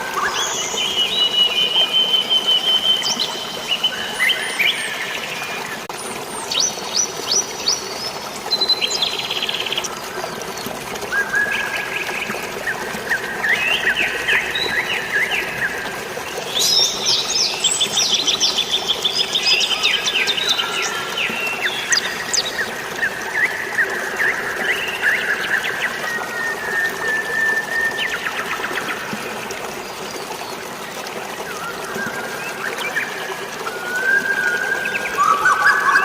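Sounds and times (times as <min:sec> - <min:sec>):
flowing water: 0:00.0 - 0:36.0
birds chirping and trilling: 0:34.1 - 0:36.0.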